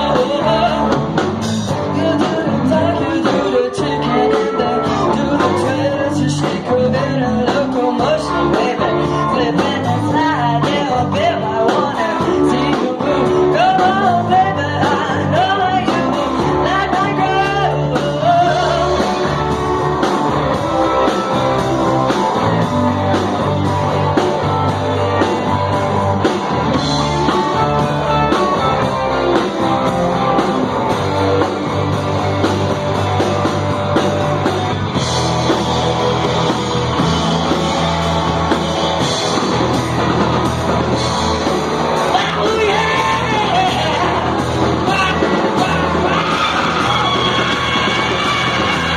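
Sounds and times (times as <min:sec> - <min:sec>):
person singing: 0:00.0 - 0:25.9, 0:42.0 - 0:48.9
live rock band playing: 0:00.0 - 0:48.9.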